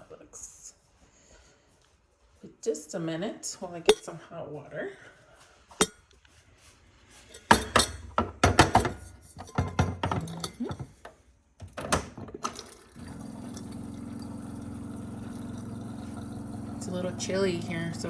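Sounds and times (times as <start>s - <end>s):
cups and dishes clinking: 7.4s - 11.1s
kitchen appliance humming: 12.4s - 18.0s.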